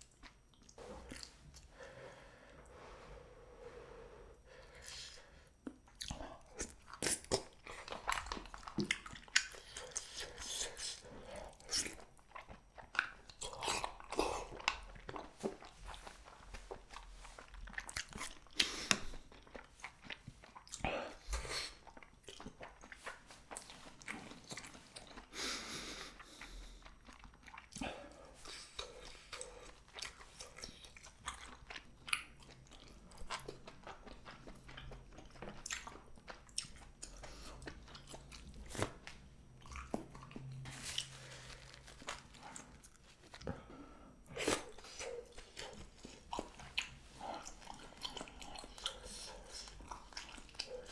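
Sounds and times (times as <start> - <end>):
close chewing and biting: 0.0 - 50.9.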